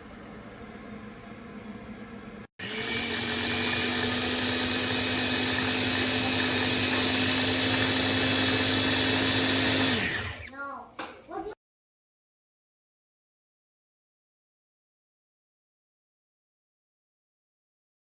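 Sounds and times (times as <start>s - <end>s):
blender motor whining: 2.6s - 10.5s.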